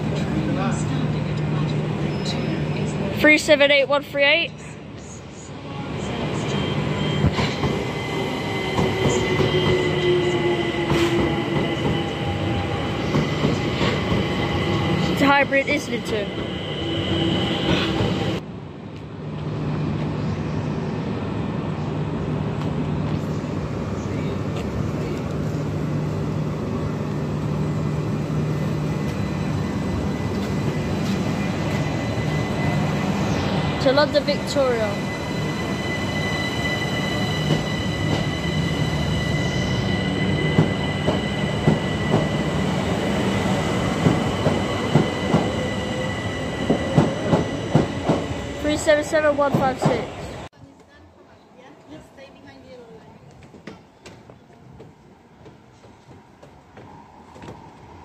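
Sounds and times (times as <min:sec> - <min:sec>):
train wheels rumbling on rails: 0:06.0 - 0:18.4, 0:27.0 - 0:50.9.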